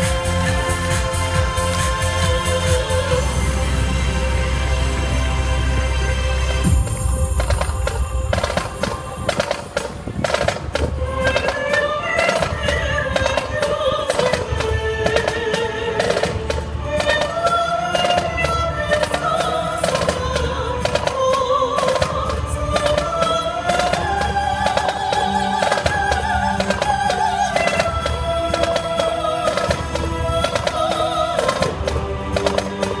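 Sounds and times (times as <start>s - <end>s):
low pulsing beat: 6.6s - 11.7s
fast loud drumming: 6.7s - 33.0s.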